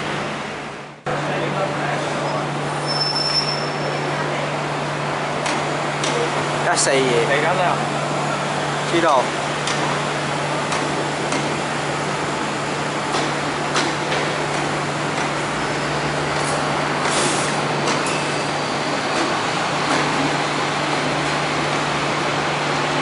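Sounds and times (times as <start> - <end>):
hissing air burst: 16.5 - 17.7.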